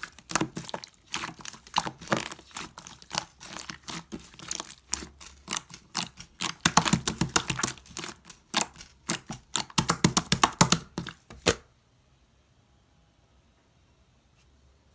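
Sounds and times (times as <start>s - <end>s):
slime crackling and popping: 0.0s - 11.5s.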